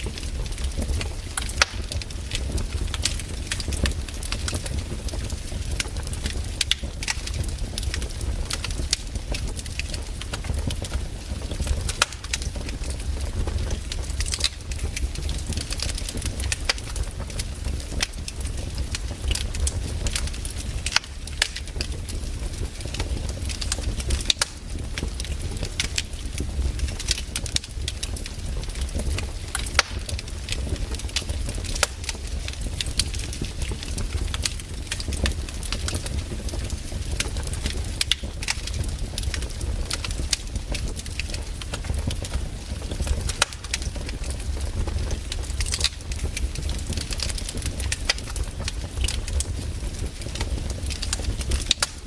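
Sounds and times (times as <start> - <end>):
campfire wood crackling and popping: 0.0 - 52.0.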